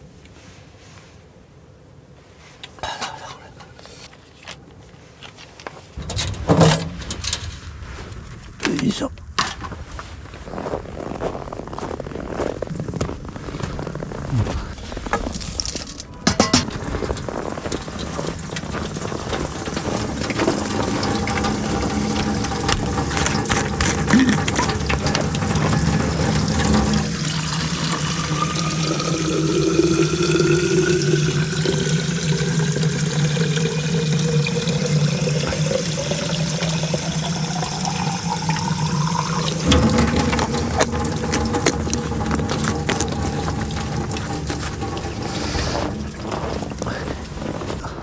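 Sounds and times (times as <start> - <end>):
liquid pouring into vessel: 16.6 - 47.8.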